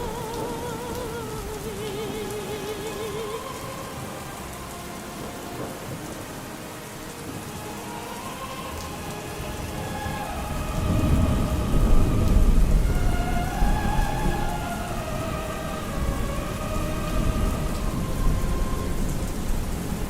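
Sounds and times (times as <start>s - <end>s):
faint distant opera music: 0.0s - 20.0s
steady rain: 0.0s - 20.0s
thunder rumbling: 0.0s - 20.0s.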